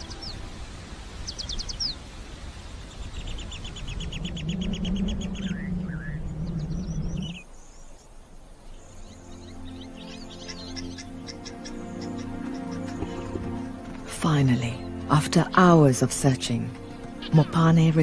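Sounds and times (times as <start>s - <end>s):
birds chirping: 0.0s - 18.0s
whistled bird glides: 2.8s - 8.1s
bird trill: 3.2s - 7.5s, 8.7s - 15.1s, 16.8s - 18.0s
low rumble: 3.5s - 7.4s
low wavering hum: 3.7s - 7.5s.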